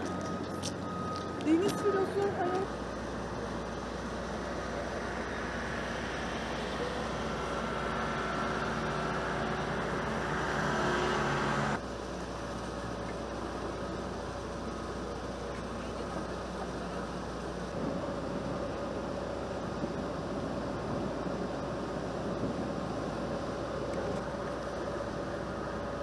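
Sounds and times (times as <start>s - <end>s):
faint steady tones: 0.0s - 26.0s.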